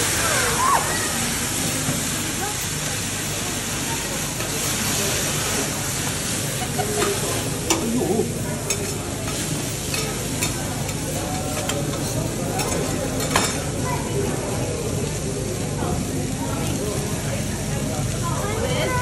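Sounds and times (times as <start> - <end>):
steak sizzling on griddle: 0.0 - 19.0
metal utensils clicking on griddle: 1.6 - 13.8.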